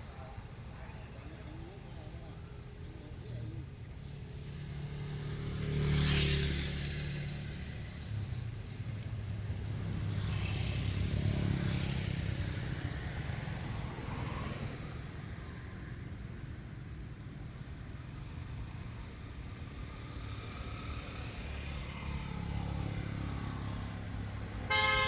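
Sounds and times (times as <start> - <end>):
vehicle engine humming: 20.0 - 25.0.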